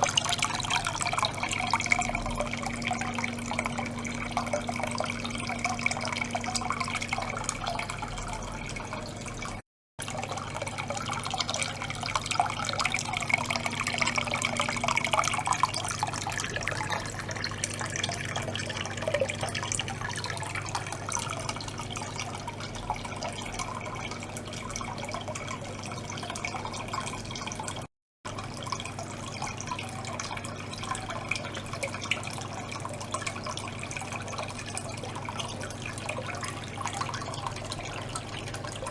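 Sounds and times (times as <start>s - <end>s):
pump humming: 0.0s - 38.9s
water churning and trickling: 0.0s - 38.9s
water dripping: 0.0s - 38.9s.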